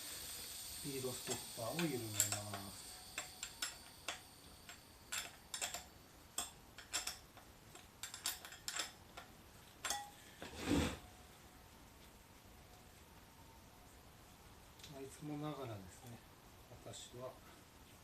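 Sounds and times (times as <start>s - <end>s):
wrench clicking on nut: 1.2s - 10.0s
metal scraping: 9.9s - 11.1s.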